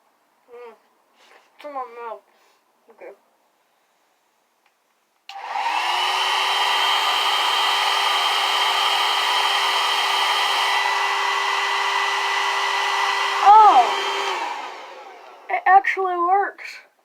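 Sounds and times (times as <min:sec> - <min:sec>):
hair dryer motor whining: 0:05.3 - 0:15.6.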